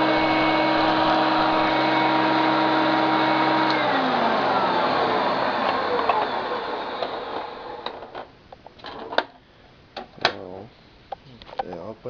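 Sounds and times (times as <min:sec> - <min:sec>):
vacuum cleaner motor winding down: 0:00.0 - 0:08.2.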